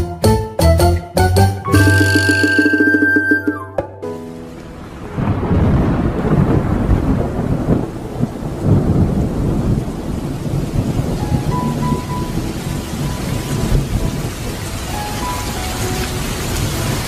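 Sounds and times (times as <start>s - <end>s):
intro music: 0.0s - 5.4s
heavy rain falling: 4.2s - 17.0s.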